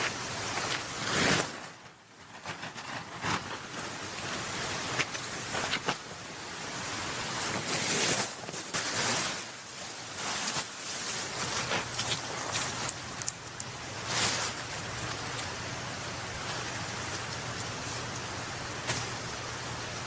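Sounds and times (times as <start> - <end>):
tent fabric rustling: 0.0 - 20.0
tent pole clicks: 11.3 - 15.6.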